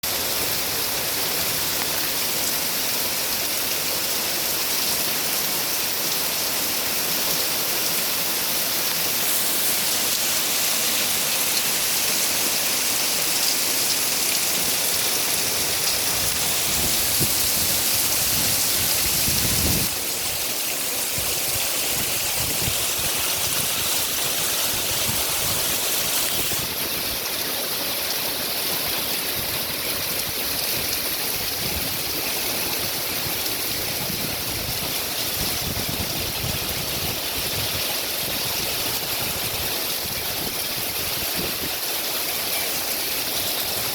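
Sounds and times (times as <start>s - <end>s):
heavy rain pouring: 0.0s - 43.9s
gusty wind rumbles: 15.6s - 20.0s.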